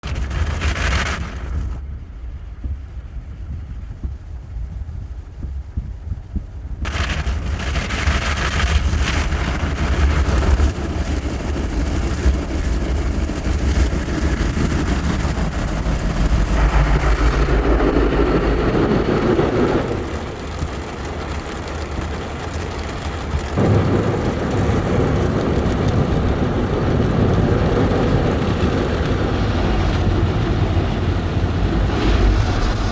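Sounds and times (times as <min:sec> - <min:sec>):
low mechanical rumble: 0:00.0 - 0:32.9
water spraying on a car: 0:06.9 - 0:32.9.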